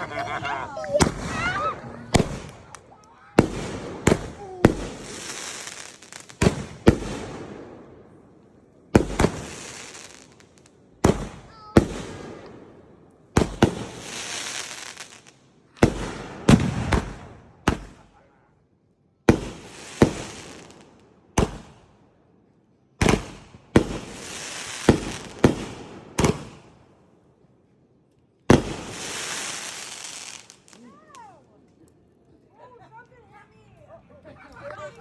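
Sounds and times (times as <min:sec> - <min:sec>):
fireworks crackling hiss: 0:00.0 - 0:07.8, 0:09.0 - 0:12.6, 0:13.4 - 0:18.0, 0:19.3 - 0:21.8, 0:23.0 - 0:26.8, 0:28.5 - 0:31.5
fireworks bangs: 0:00.0 - 0:08.1, 0:08.9 - 0:18.2, 0:19.3 - 0:21.8, 0:23.0 - 0:26.8, 0:28.5 - 0:31.3.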